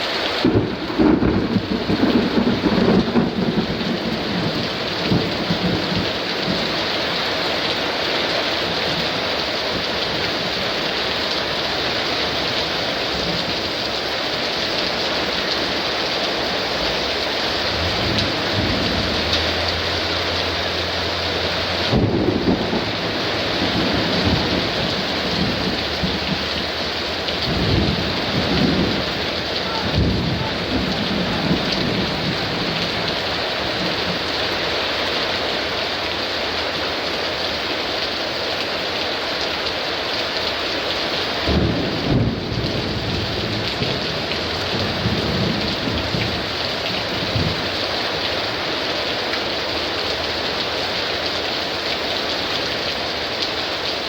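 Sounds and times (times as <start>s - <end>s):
heavy rain hissing: 0.0s - 54.0s
thunder rumbling: 0.3s - 7.5s, 11.8s - 34.7s, 41.4s - 47.8s.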